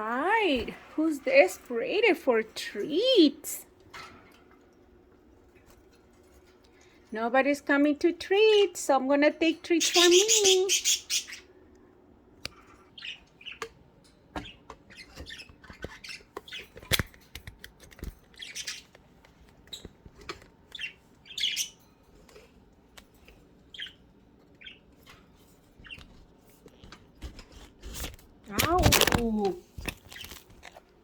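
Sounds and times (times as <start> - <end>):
budgerigars chirping and squawking: 9.7 - 11.6, 12.7 - 13.7, 14.4 - 16.8, 18.4 - 18.9, 20.7 - 21.8, 23.7 - 26.2.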